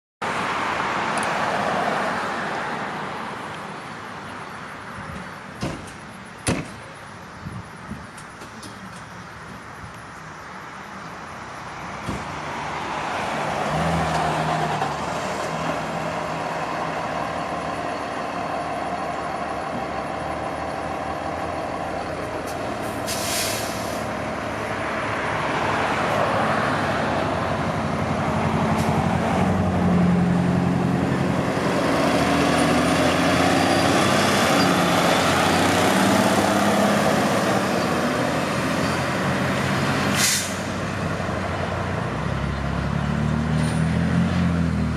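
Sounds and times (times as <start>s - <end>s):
fire engine diesel engine running: 15.9s - 24.8s
air brake hiss: 22.8s - 24.2s, 40.1s - 40.8s.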